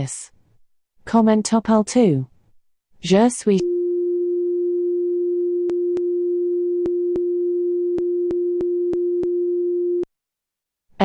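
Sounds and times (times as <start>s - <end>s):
steady electronic tone: 3.6s - 10.0s.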